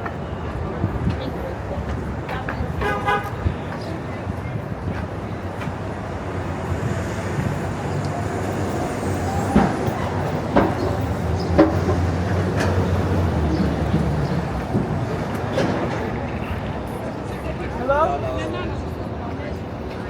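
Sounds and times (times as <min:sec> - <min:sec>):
city street traffic: 0:00.0 - 0:20.0
heavy vehicle engine humming: 0:03.9 - 0:17.5.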